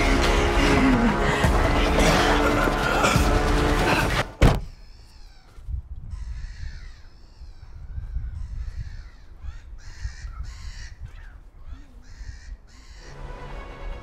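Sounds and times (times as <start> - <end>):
bird calling: 4.6 - 5.6.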